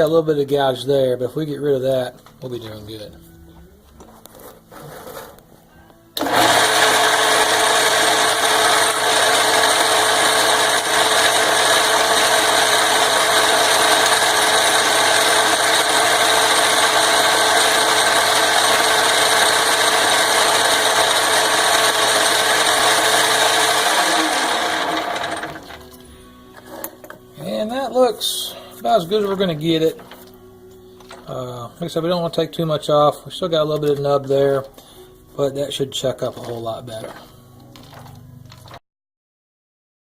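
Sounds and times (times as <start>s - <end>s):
metal lathe running: 6.2s - 25.9s.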